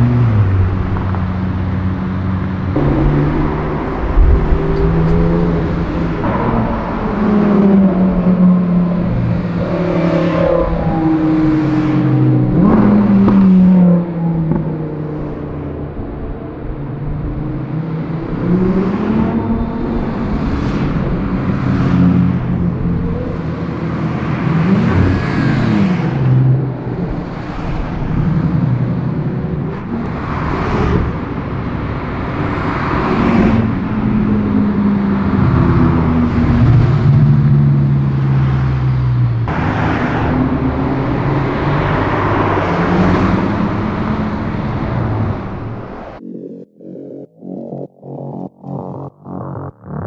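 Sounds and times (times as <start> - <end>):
sports cars accelerating past: 0.0 - 46.2
city traffic: 0.0 - 50.0.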